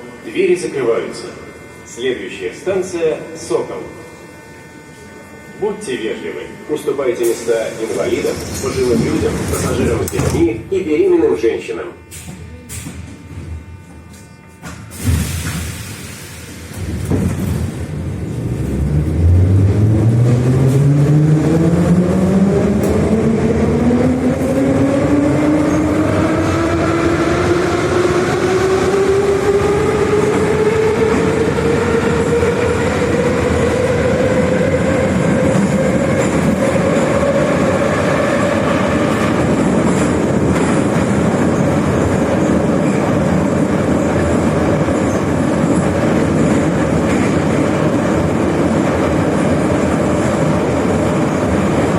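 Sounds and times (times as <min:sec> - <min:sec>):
train motor whine rising: 0:00.0 - 0:41.0
rumble of wheels on rail: 0:00.0 - 0:51.9.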